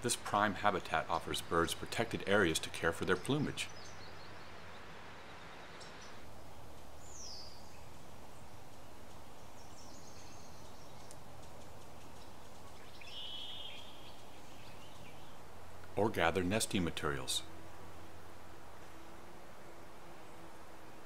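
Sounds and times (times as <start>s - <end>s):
faint wild bird calls: 0.0s - 21.0s
outdoor background noise: 0.0s - 21.0s.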